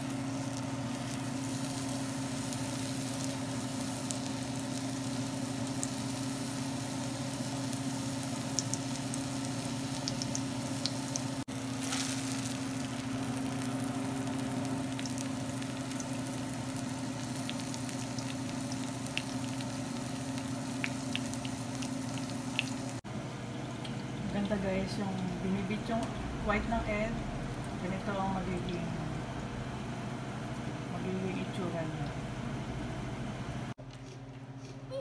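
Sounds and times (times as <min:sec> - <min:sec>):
eggplant sizzling in hot oil: 0:00.0 - 0:23.0
low hum: 0:23.8 - 0:33.7.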